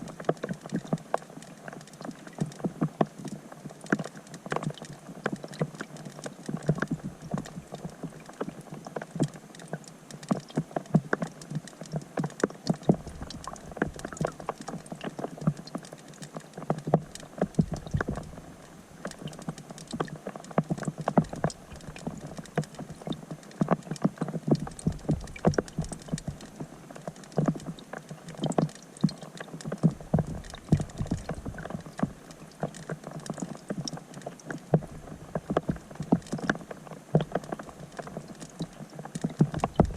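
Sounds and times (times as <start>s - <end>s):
rain on water heard underwater: 0.0s - 39.9s.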